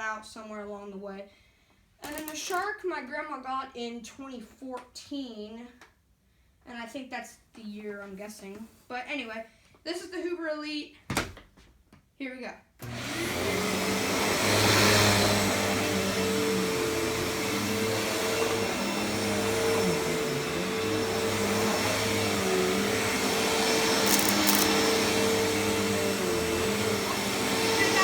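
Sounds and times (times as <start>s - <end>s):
vacuum cleaner motor whine: 12.8s - 28.0s.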